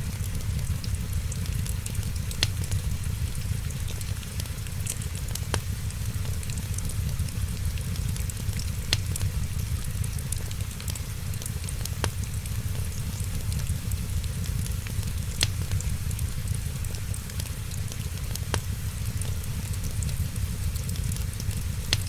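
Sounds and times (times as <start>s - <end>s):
wood fire crackling: 0.0s - 22.0s
loud fire pops: 6.6s - 10.4s.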